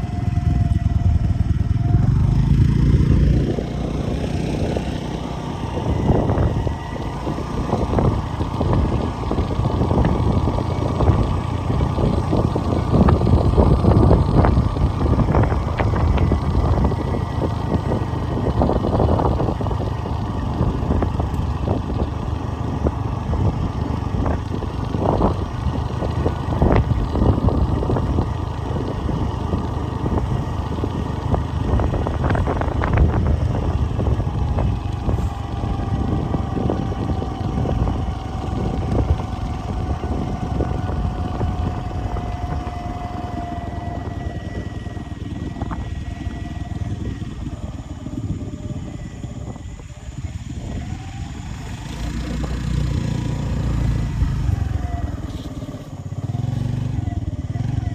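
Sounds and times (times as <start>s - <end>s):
vehicle engine rumbling: 0.0s - 57.9s.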